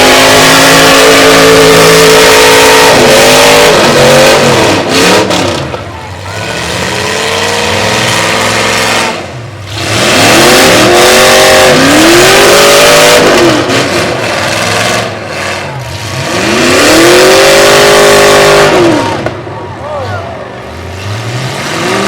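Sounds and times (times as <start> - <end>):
truck engines revving hard: 0.0 - 22.0.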